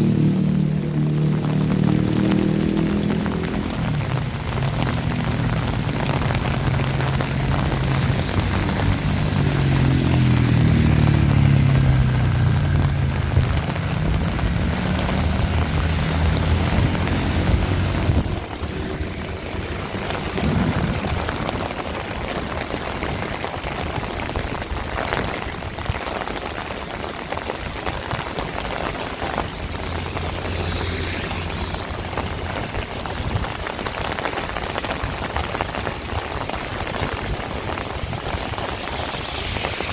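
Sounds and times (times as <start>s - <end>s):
low engine hum: 0.0s - 23.8s
heavy rain: 0.0s - 39.9s.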